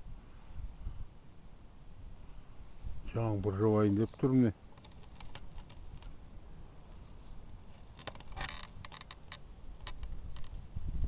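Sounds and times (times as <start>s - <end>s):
wind rumbling on microphone: 0.0s - 1.2s, 1.9s - 11.0s
handling clicks and rustling: 4.0s - 6.2s, 6.8s - 10.6s.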